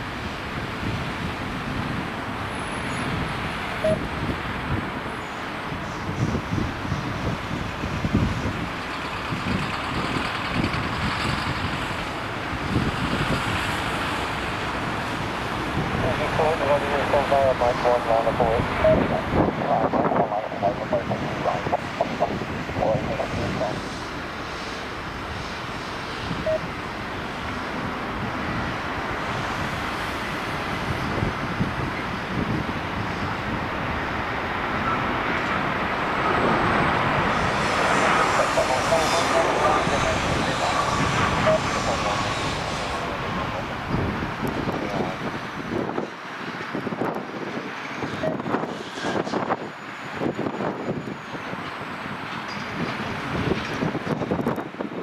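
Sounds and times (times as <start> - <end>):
jet engine noise: 0.0 - 55.0
wind buffeting microphone: 0.0 - 55.0
short beep: 3.8 - 4.1, 26.4 - 26.7.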